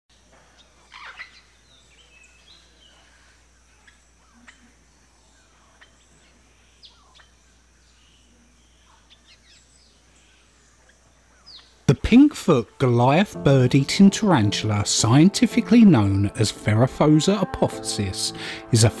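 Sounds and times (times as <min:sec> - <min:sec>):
wild birds chirping and calling: 0:00.4 - 0:11.9.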